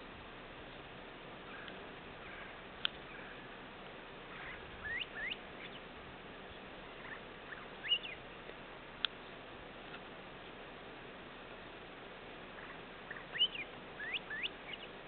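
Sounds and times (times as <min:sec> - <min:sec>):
steady hiss: 0:00.0 - 0:15.0
birds chirping: 0:00.7 - 0:09.4, 0:12.4 - 0:15.0.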